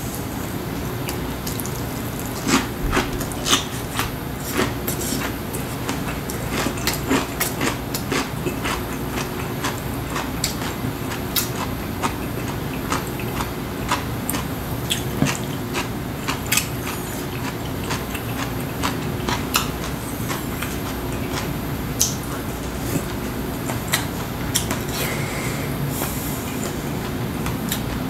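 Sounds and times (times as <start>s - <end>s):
man chewing food: 0.0s - 28.0s
steady low hum: 0.0s - 28.0s.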